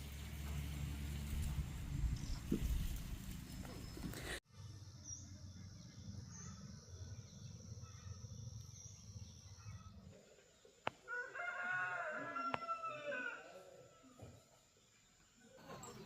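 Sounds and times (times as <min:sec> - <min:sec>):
rooster crowing: 0:11.0 - 0:14.4.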